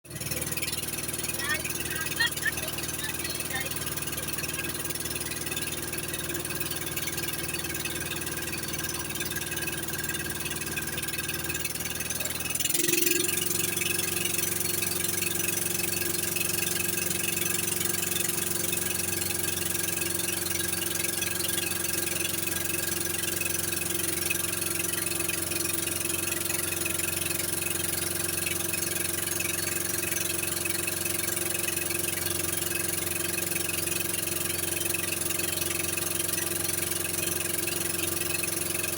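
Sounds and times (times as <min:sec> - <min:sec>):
engine humming: 0:00.1 - 0:13.0.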